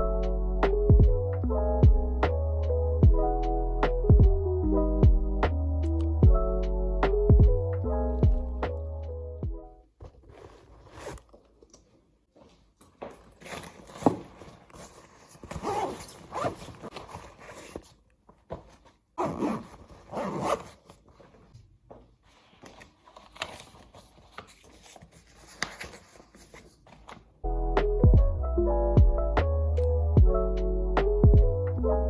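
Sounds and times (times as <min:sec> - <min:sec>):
scraping rustling handling noises: 0:10.0 - 0:12.0, 0:13.1 - 0:27.3.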